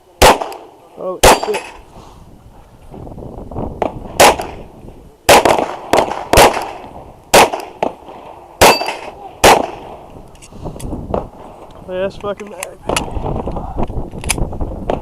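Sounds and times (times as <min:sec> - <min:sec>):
pistol shots: 0:00.2 - 0:01.8, 0:03.8 - 0:04.7, 0:05.3 - 0:10.0
steel targets clanging: 0:08.6 - 0:09.2.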